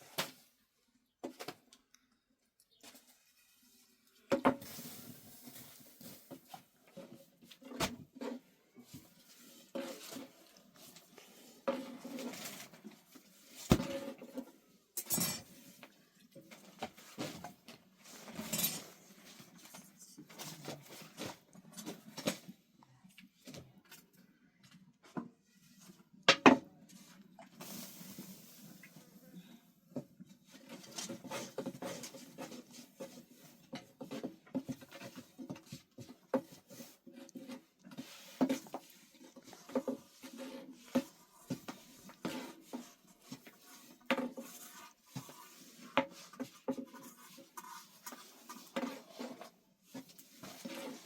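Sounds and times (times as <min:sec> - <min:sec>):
dishes and utensils clinking: 0:15.0 - 0:15.6, 0:18.3 - 0:19.0.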